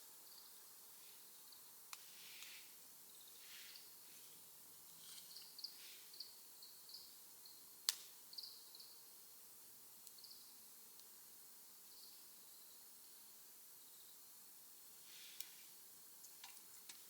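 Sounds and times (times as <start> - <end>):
fire crackle-pop: 7.8 - 8.2
wood fire in stove: 15.0 - 17.0.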